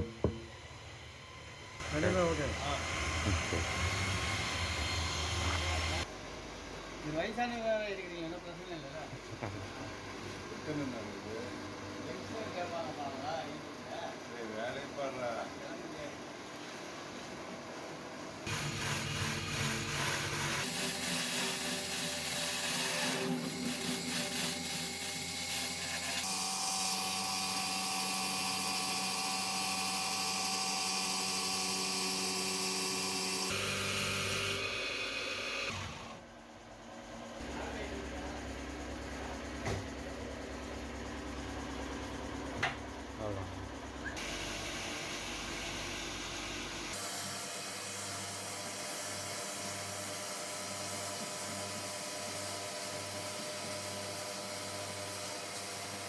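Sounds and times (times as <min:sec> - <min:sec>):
power tool whining: 0:00.0 - 0:06.1, 0:18.4 - 0:36.2, 0:44.0 - 0:56.0
machine humming and hissing: 0:00.0 - 0:09.1, 0:09.8 - 0:56.0.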